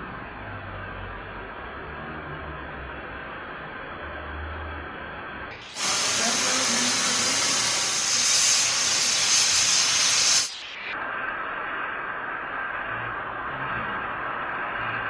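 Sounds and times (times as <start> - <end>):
welding hiss: 5.5 - 11.0.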